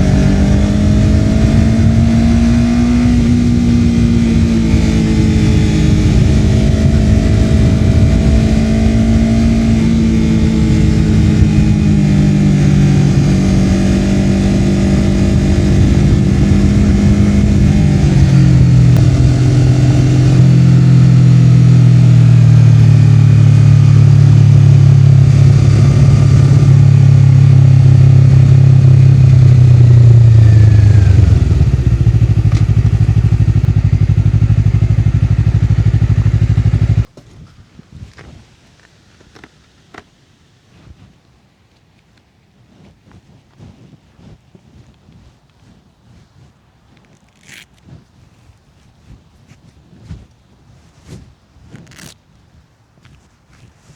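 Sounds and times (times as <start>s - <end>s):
motorcycle engine running: 0.0s - 37.2s.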